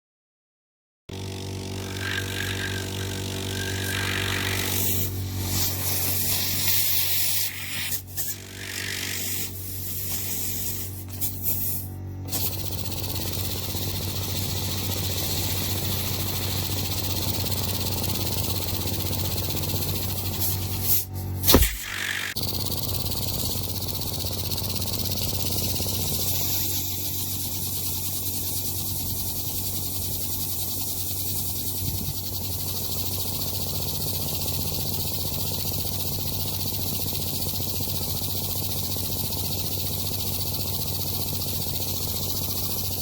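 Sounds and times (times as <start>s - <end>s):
model steam engine hissing: 1.2s - 43.0s
sharp click: 21.4s - 22.4s.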